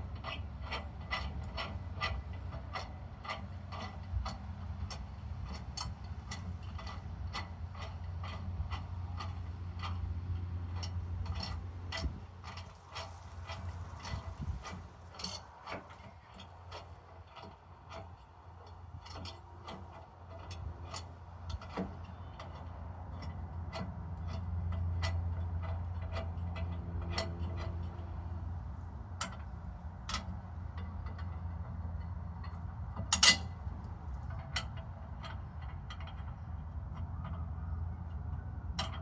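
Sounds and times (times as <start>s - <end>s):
metallic clicks of hand tools: 32.4s - 33.5s.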